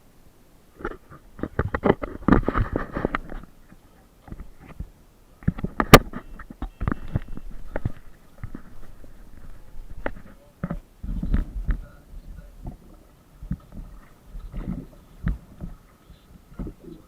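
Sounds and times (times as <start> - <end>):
water sloshing: 0.6 - 17.0
paddle knocks against hull: 4.2 - 16.9.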